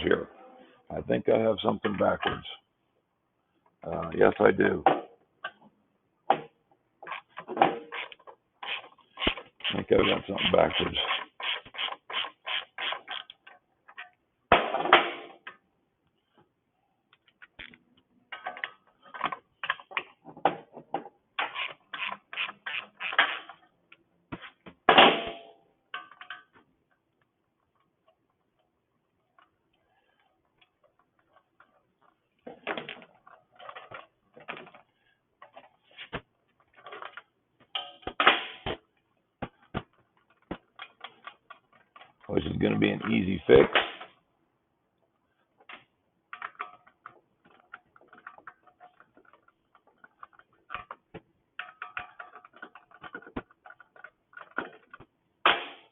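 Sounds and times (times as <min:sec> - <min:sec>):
hand tools clicking and tapping: 0:46.4 - 0:55.1.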